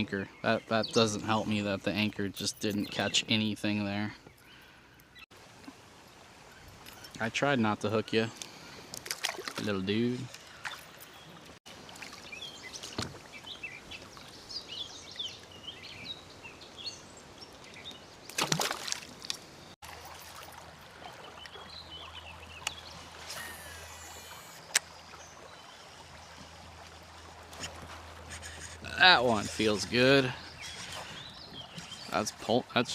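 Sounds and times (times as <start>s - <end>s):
birds chirping: 0.0s - 5.3s, 9.6s - 18.4s, 21.0s - 32.9s
faint water noise: 0.0s - 32.9s.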